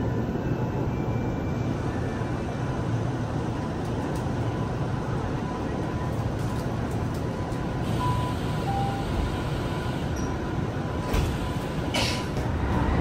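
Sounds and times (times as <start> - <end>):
train equipment low drone: 0.0 - 13.0.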